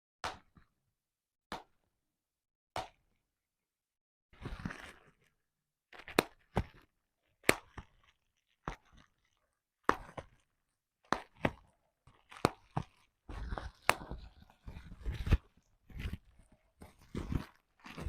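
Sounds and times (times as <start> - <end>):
bubble wrap popping: 6.0 - 10.4.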